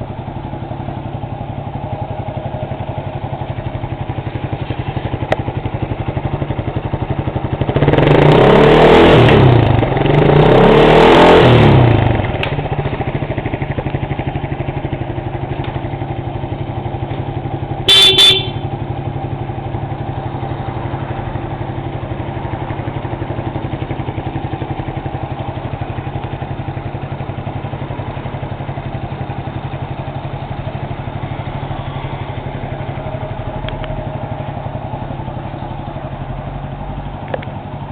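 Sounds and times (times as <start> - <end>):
motorcycle engine idling and revving: 0.0 - 37.9
motorcycle horn beep: 17.8 - 18.9.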